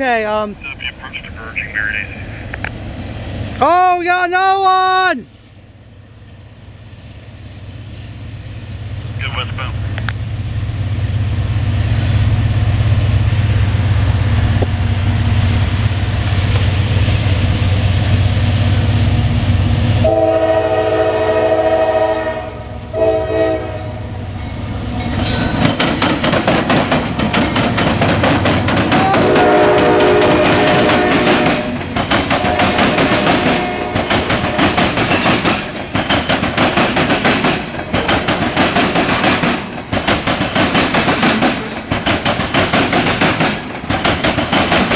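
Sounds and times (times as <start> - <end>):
locomotive rumble: 0.0 - 44.9
train air horn: 20.0 - 24.1, 29.0 - 31.8, 32.4 - 34.8
wheels clattering on rails: 24.4 - 44.9.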